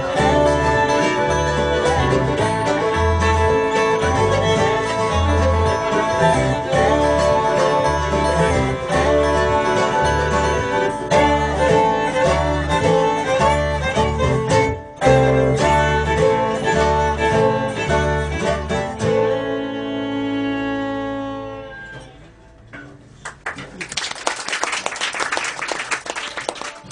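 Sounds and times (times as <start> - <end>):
bluegrass band with fiddle and guitar: 0.0 - 22.7.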